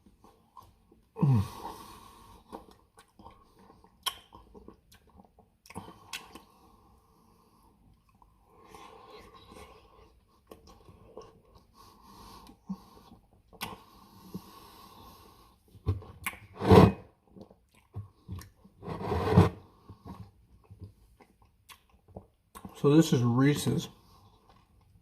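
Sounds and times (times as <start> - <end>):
person chewing close to microphone: 0.0 - 7.0, 7.7 - 14.6, 15.7 - 16.5, 17.2 - 18.8, 19.8 - 22.8, 24.0 - 25.0
soft wet mouth clicks: 4.0 - 6.5.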